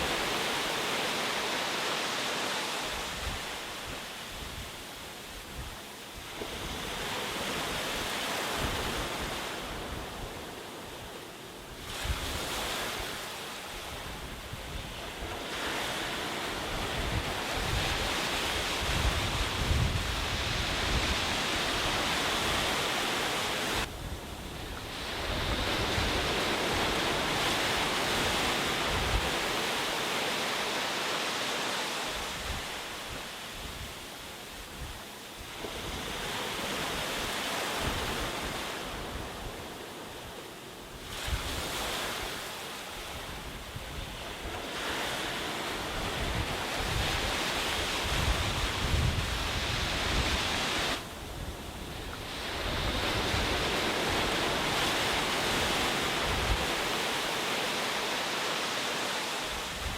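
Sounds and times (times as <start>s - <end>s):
waves breaking on beach: 0.0s - 59.9s.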